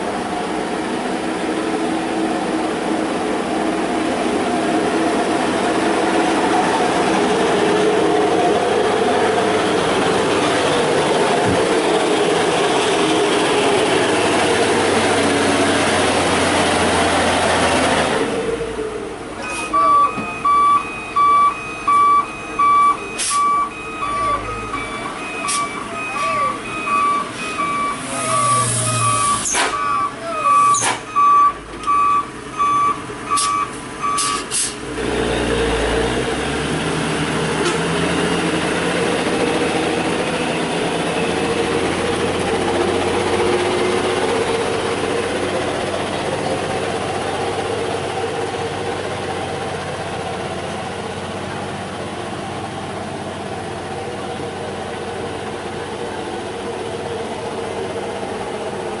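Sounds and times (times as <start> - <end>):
truck diesel engine running: 0.0 - 59.0
truck reversing alarm beeping: 19.4 - 34.8, 39.2 - 44.3
air brake hiss: 23.2 - 23.5, 34.2 - 34.8.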